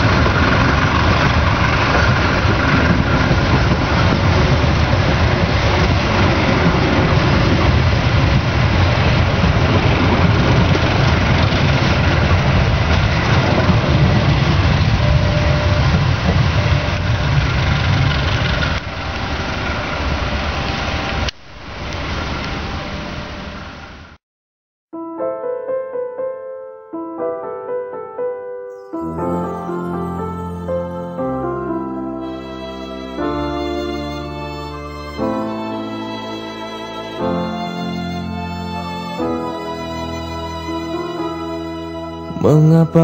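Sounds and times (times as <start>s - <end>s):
train wheels rumbling on rails: 0.0s - 23.6s.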